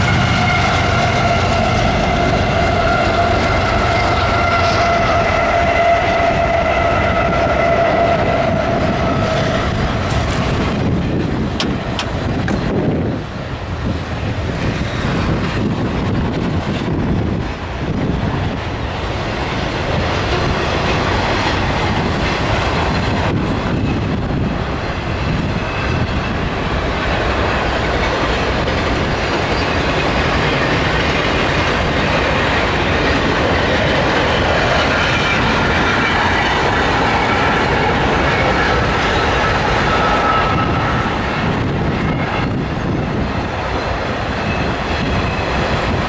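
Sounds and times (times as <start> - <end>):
high-pitched wheel squeal: 0.0 - 10.5, 24.9 - 26.5, 34.2 - 45.9
freight train wheels rumbling: 0.0 - 46.0.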